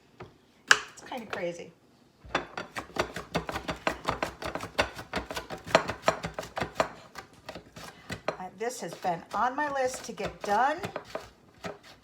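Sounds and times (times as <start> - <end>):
cucumbers sliced on a mandolin: 8.9 - 12.0.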